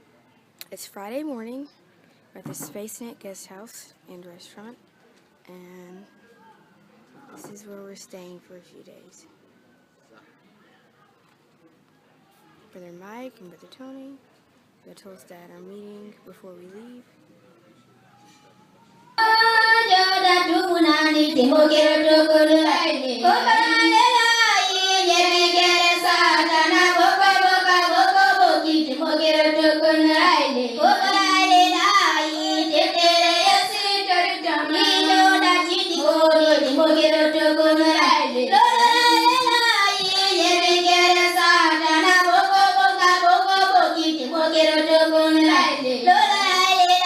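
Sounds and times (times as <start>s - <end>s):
children singing: 19.2s - 47.0s.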